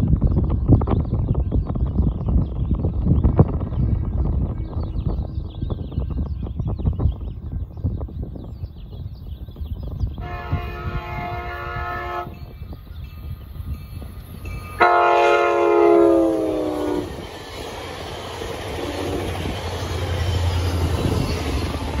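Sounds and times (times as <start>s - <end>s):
train coaches rumbling past: 9.5s - 22.0s
train horn blasts: 10.2s - 12.5s, 14.8s - 17.2s.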